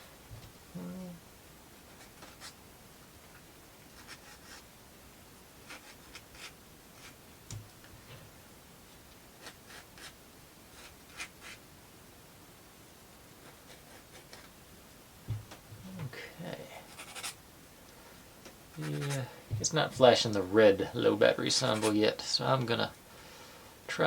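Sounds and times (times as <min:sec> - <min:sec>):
soft low thump: 0:15.3 - 0:16.1
sandpaper scratching wood: 0:18.8 - 0:19.2, 0:21.7 - 0:22.0.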